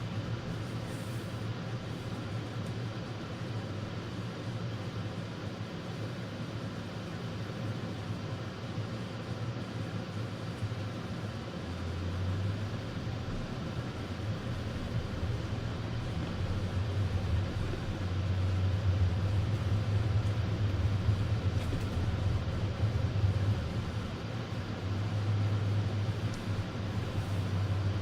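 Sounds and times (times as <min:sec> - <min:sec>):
car engine drone: 0:00.0 - 0:28.0
tyre and road hiss: 0:00.0 - 0:28.0.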